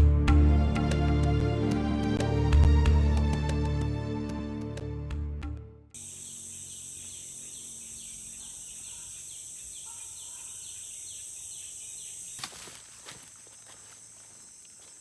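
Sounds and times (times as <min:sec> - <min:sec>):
forest insects chorus: 0:06.0 - 0:15.0.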